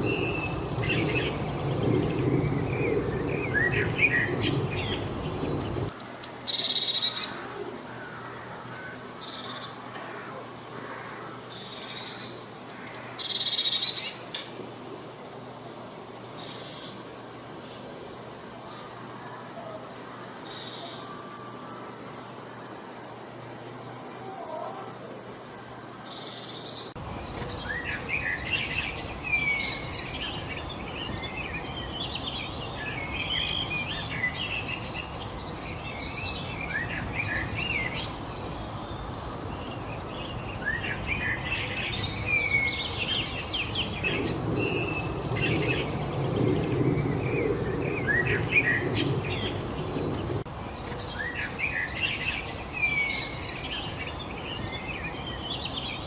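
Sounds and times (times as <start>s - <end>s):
background hiss: 0.0s - 56.0s
small birds chirping and singing: 0.0s - 56.0s.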